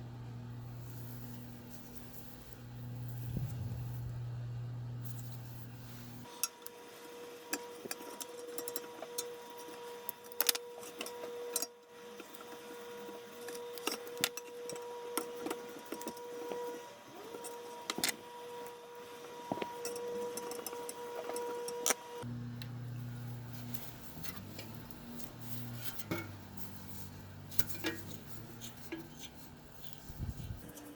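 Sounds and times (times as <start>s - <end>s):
low hum: 22.2s - 30.8s
steady faint hum: 22.2s - 30.9s.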